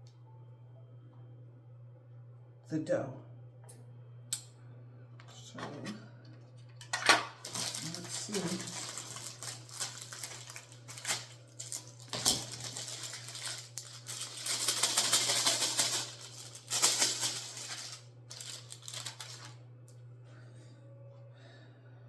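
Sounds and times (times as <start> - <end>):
dough rustling: 7.4 - 19.5.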